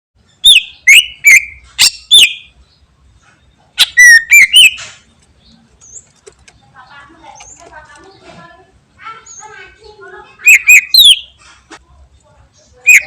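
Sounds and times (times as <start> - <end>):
bird singing whistled notes: 0.2 - 2.9, 3.5 - 5.1, 10.4 - 11.4.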